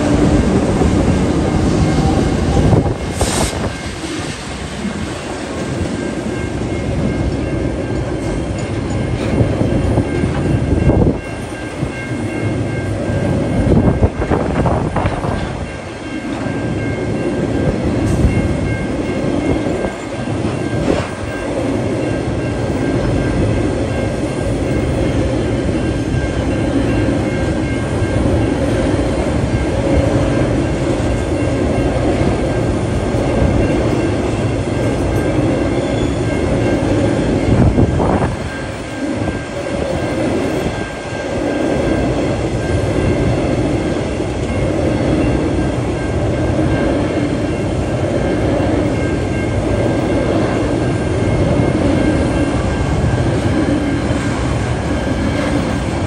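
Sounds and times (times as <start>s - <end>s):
freight train wheels clattering: 0.0s - 56.0s.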